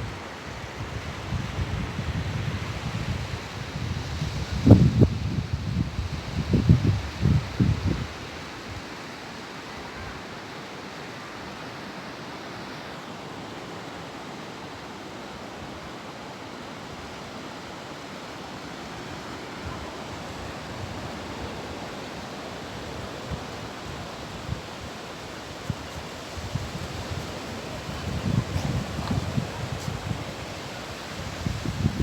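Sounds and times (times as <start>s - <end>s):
wind buffeting microphone: 0.0s - 8.8s, 22.6s - 32.0s
ocean surf breaking on beach: 0.0s - 32.0s.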